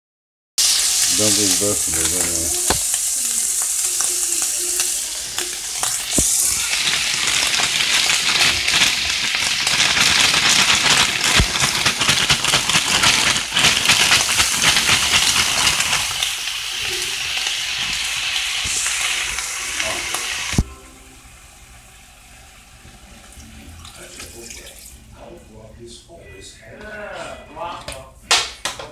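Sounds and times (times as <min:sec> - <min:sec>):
food sizzling in a wok: 0:00.6 - 0:23.4.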